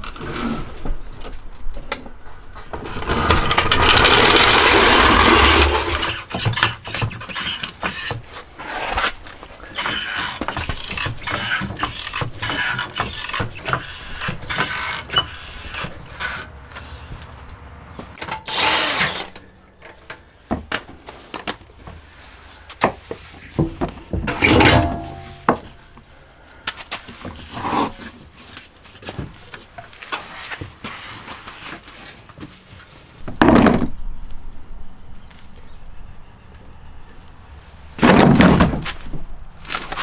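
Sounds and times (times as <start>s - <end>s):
long scraping rush: 2.8s - 6.2s
tools clicking and knocking: 23.6s - 25.8s.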